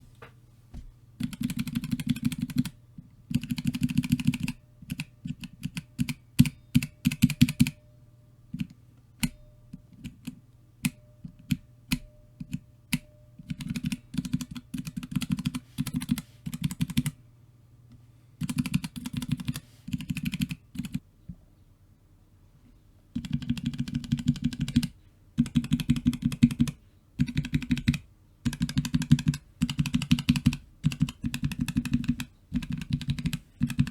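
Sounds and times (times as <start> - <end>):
mechanical keyboard keystrokes: 1.2 - 7.8, 18.4 - 21.0, 23.2 - 33.9.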